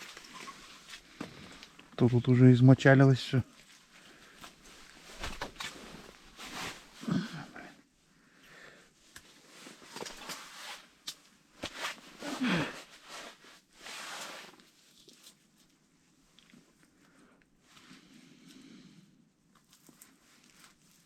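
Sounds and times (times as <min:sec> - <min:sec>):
hands rustling and scraping: 0:03.6 - 0:07.0.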